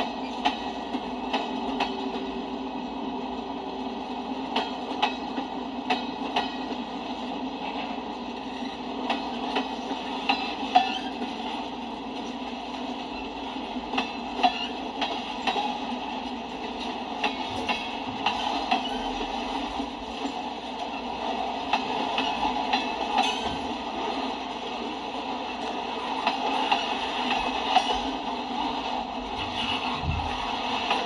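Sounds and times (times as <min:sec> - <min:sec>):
wheels clacking over rail joints: 0:00.0 - 0:02.4, 0:08.4 - 0:21.0
steel wheels rumbling on rail: 0:00.0 - 0:31.0.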